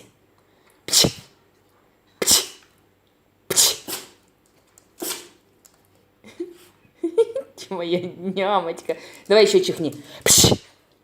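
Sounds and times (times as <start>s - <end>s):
dog sneezing: 0.9s - 1.4s, 2.2s - 2.7s, 3.5s - 4.2s, 5.0s - 5.4s, 10.2s - 10.8s.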